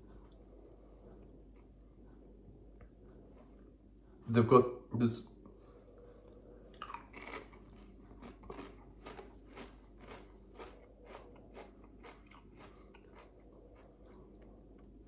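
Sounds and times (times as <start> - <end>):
person chewing crisps: 6.1 - 15.0.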